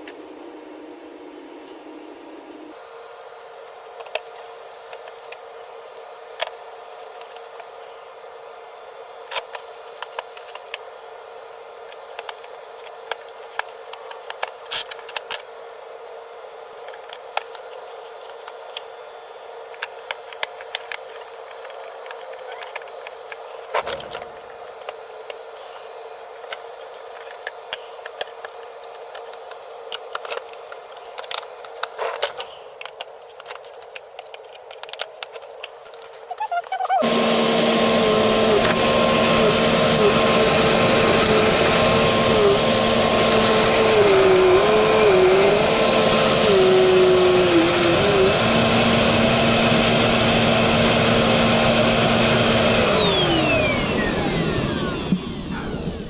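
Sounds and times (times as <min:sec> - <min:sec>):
plastic parts clicking and knocking: 0:26.4 - 0:36.3.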